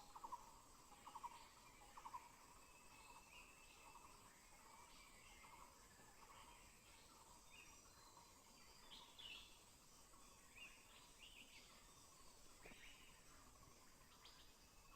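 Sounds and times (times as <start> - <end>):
faint insect buzz: 0.0 - 14.9
bird chirps: 10.2 - 14.9.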